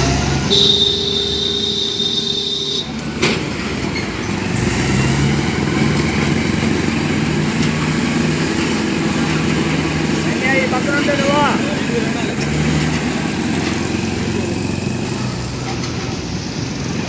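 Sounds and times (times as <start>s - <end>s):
tractor engine running: 0.0s - 17.0s
steady high tone: 0.4s - 3.0s.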